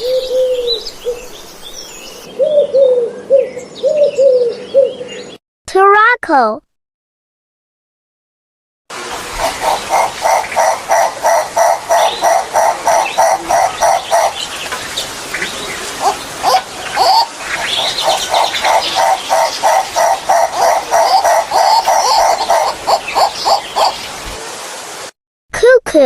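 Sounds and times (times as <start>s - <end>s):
turaco calling: 9.0s - 24.4s.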